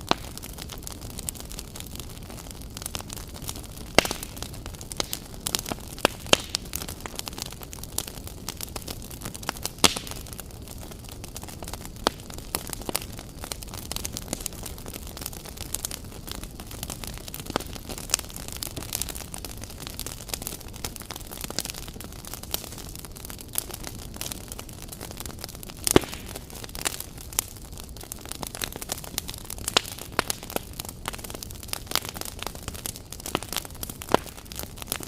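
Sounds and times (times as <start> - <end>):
campfire crackling and popping: 0.0 - 35.0
low rumble of burning logs: 0.0 - 35.0.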